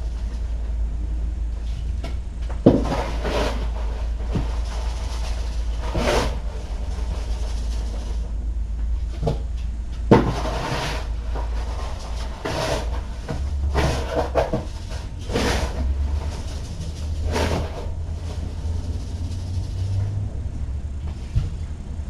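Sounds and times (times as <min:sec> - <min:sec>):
low electrical hum: 0:00.0 - 0:22.0
cat litter scooping scrapes: 0:02.7 - 0:08.4, 0:10.1 - 0:20.3.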